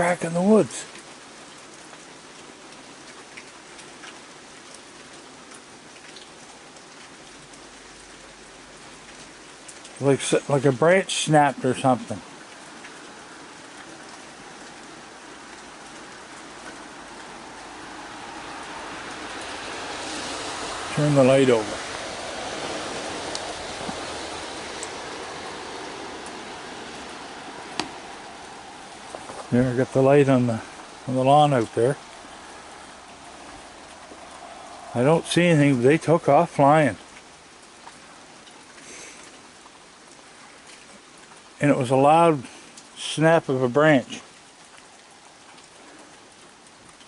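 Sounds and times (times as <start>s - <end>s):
steady rain falling: 0.0s - 47.0s
drops ticking: 8.8s - 41.5s.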